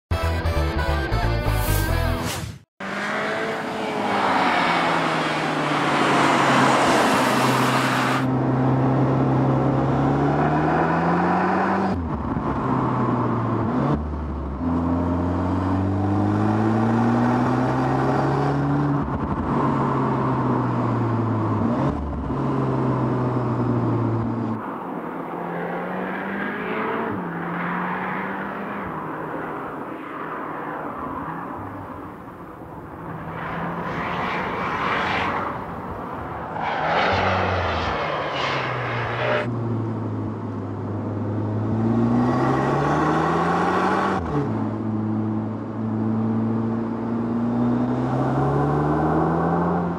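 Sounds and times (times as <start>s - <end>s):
car engine accelerating: 32.5s - 40.3s.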